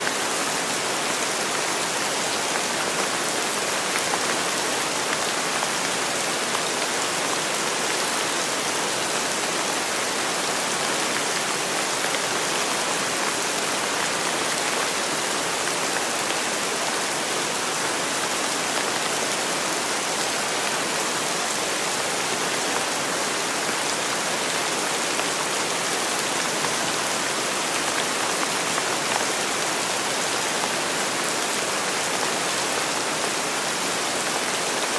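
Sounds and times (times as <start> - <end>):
steady rainfall: 0.0 - 34.9.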